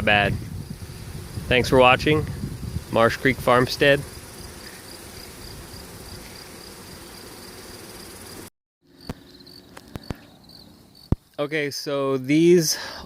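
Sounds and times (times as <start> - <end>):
honeybees humming: 0.5 - 11.2
cricket chirping: 7.4 - 11.4.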